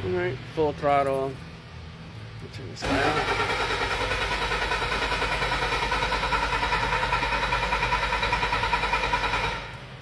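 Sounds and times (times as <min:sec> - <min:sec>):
diesel engine running at high throttle: 0:02.8 - 0:10.0.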